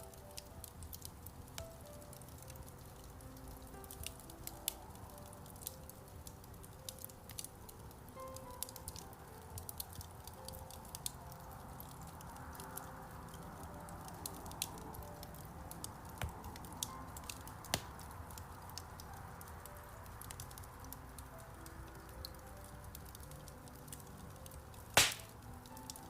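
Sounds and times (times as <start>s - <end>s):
soft piano music: 0.0s - 26.0s
wood fire crackling: 0.0s - 26.0s.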